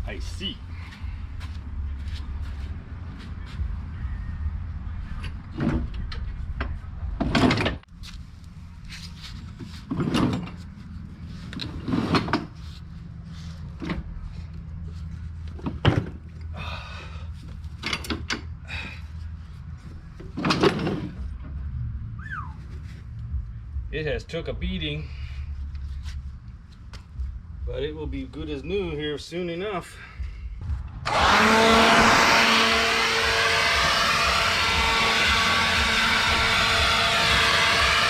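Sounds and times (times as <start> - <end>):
steady low rumble: 0.0 - 9.9, 21.1 - 38.0.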